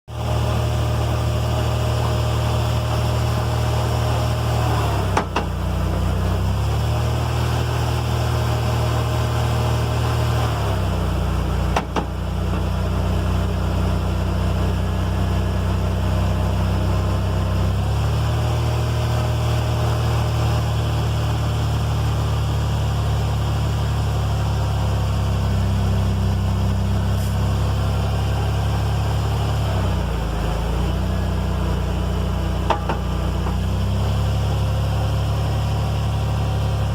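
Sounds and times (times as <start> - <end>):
truck engine droning: 0.1 - 36.9
sharp clunks from rear axle: 5.0 - 6.1, 11.6 - 12.8, 32.6 - 33.7.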